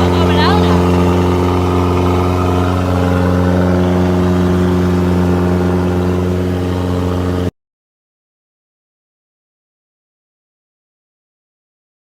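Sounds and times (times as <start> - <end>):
combine harvester engine droning: 0.0 - 7.5.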